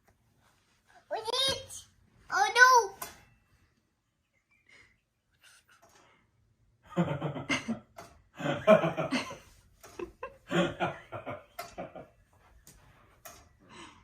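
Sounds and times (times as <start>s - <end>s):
person laughing: 7.0s - 12.0s.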